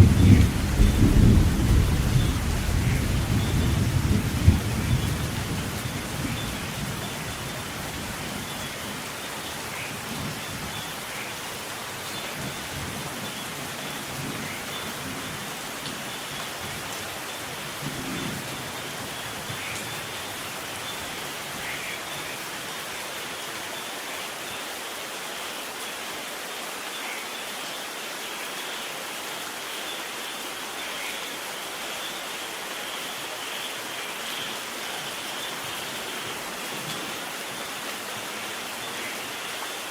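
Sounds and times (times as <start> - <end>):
thunder rumbling: 0.0 - 8.3
steady rain: 0.0 - 39.9.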